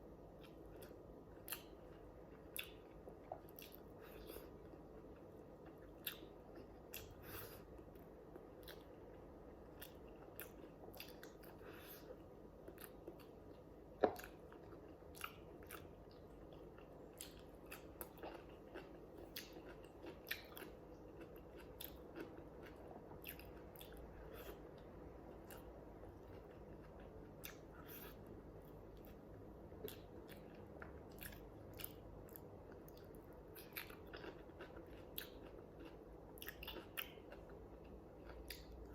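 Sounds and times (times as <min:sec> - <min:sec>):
chewing and biting: 0:14.0 - 0:24.6, 0:29.8 - 0:38.9.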